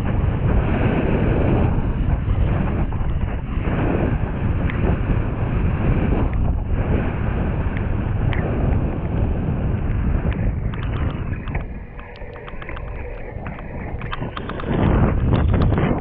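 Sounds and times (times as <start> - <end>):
wind buffeting microphone: 0.0 - 16.0
sharp clicks and taps: 10.3 - 15.8.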